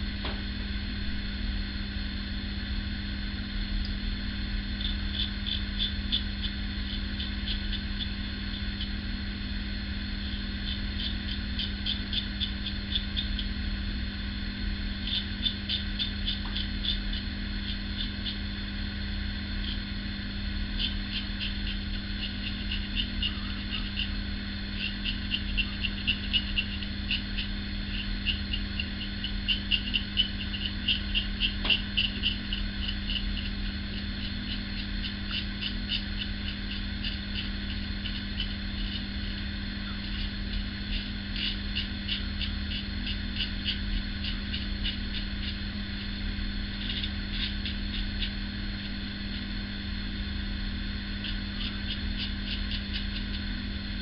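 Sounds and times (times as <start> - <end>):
low hum: 0.0 - 54.0
razor scraping stubble: 20.8 - 24.2, 24.8 - 49.0, 51.2 - 53.4.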